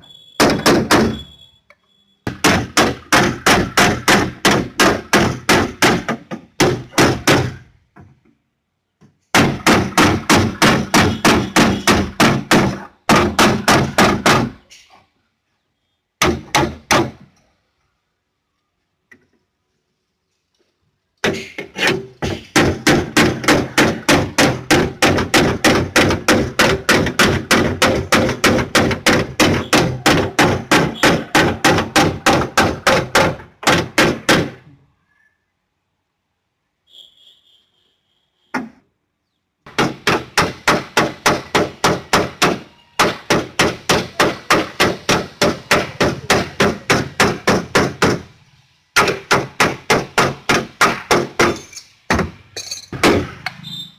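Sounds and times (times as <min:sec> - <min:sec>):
hammer beating car body panel: 0:00.4 - 0:01.2, 0:02.3 - 0:07.7, 0:09.3 - 0:14.6, 0:16.2 - 0:17.2, 0:21.2 - 0:34.6, 0:39.7 - 0:48.3, 0:49.0 - 0:52.4, 0:53.0 - 0:53.4.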